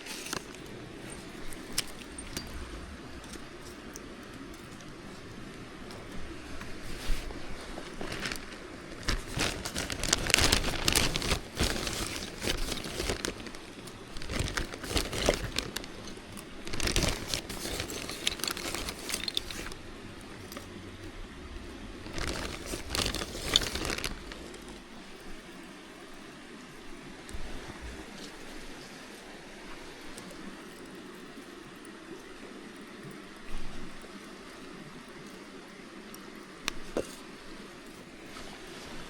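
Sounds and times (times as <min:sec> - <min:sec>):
crinkly material rustling: 0:00.0 - 0:26.2, 0:36.6 - 0:39.0.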